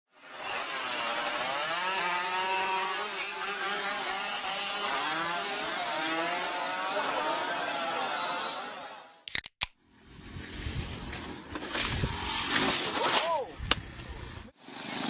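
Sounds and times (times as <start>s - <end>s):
motorcycle engines revving: 0.6s - 8.1s.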